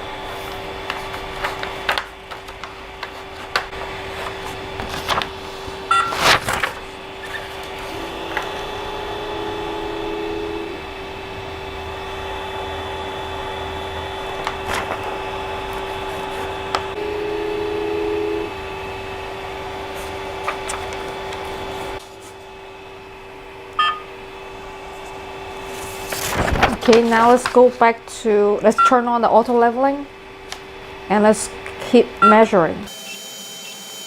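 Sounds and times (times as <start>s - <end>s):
fan noise: 0.0s - 32.9s
stepper motors whining: 7.0s - 19.0s, 32.2s - 34.0s.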